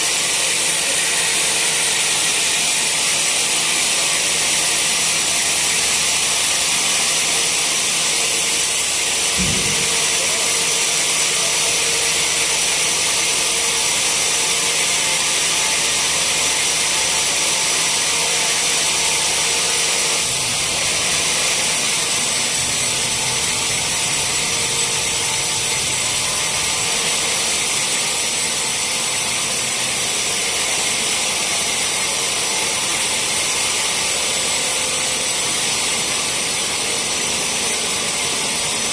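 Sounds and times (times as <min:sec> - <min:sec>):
saw cutting through log: 0:00.0 - 0:38.9
low thump: 0:09.4 - 0:10.3.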